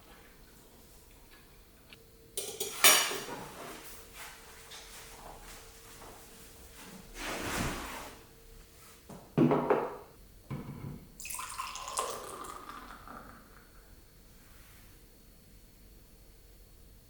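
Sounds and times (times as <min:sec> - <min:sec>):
dishes knocking: 0:09.4 - 0:11.0
water running into sink: 0:11.2 - 0:13.5.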